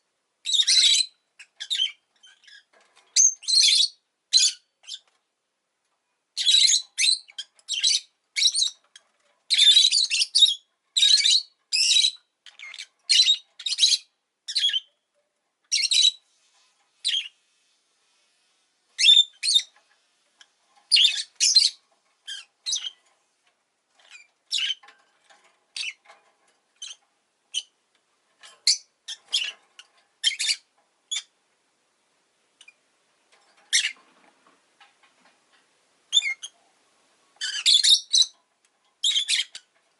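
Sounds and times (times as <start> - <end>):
lovebird shrill chirps: 19.0 - 19.7.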